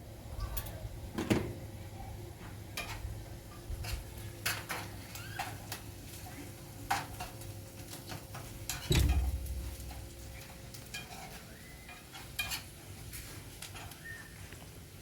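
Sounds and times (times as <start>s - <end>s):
heavy thump: 8.9s - 9.6s.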